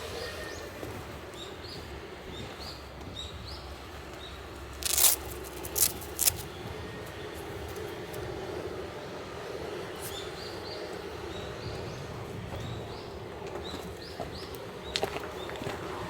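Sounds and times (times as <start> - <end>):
low outdoor background: 0.0 - 16.0.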